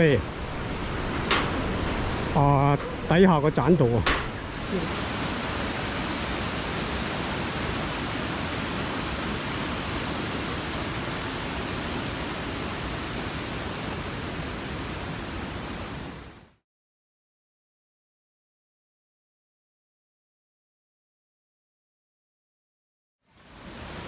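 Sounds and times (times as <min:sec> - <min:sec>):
waterfall rushing: 0:04.3 - 0:16.5, 0:23.4 - 0:24.0.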